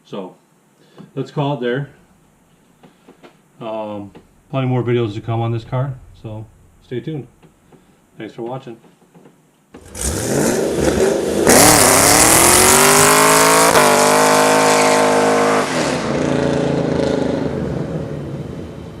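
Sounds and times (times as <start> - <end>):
car engine revving hard: 9.8 - 18.4.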